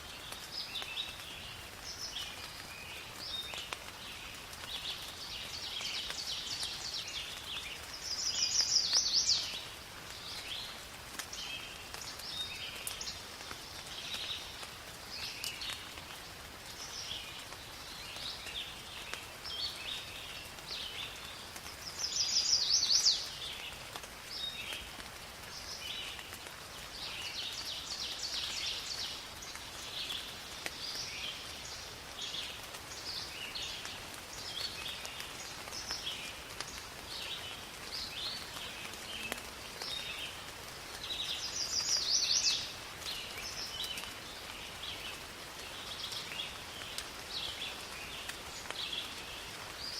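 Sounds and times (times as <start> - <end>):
rain falling in a forest: 0.0 - 49.9
birds chirping and singing: 6.4 - 9.6, 22.0 - 23.3, 41.1 - 42.8.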